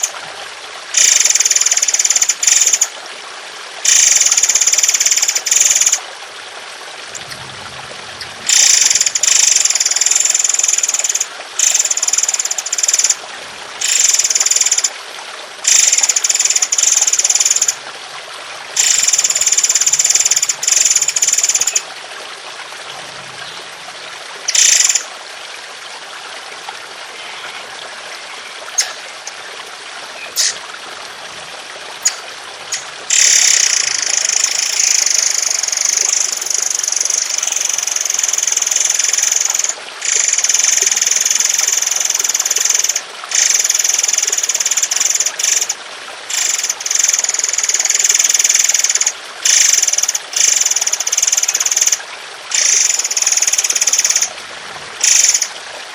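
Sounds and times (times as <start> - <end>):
trickle of running water: 0.0 - 55.9
harsh rapid bird chattering: 28.7 - 29.4, 30.2 - 30.6, 32.0 - 35.5.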